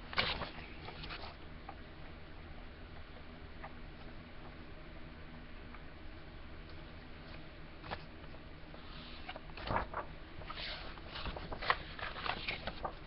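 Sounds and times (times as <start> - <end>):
paper pages rustling: 0.1 - 1.4, 7.3 - 13.0.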